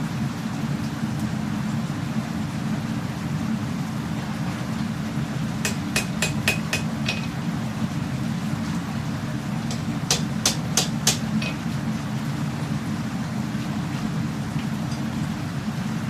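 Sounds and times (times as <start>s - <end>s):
steady low hum: 1.3s - 16.0s
hammer striking steel on anvil: 5.6s - 7.4s, 9.7s - 11.6s.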